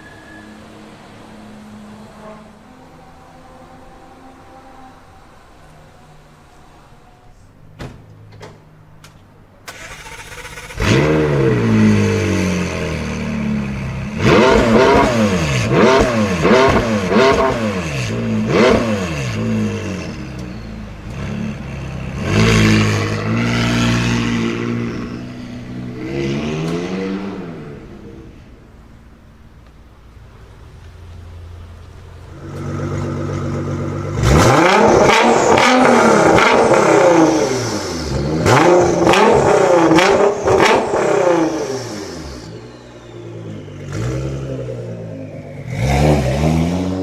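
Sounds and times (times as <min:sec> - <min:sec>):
car engine revving: 0:09.7 - 0:29.5, 0:30.3 - 0:47.0.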